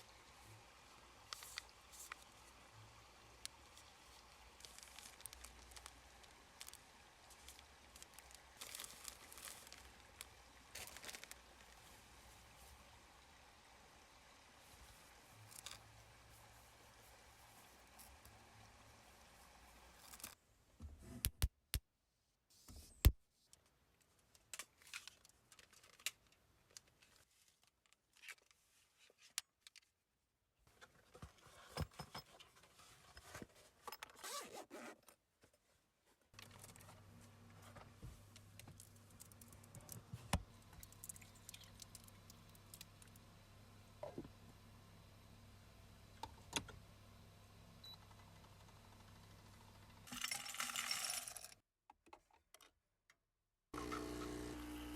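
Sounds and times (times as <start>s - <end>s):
faint steady hum: 0.0s - 21.0s, 36.4s - 50.2s, 53.8s - 54.9s
handling rustling and scraping: 30.7s - 39.0s.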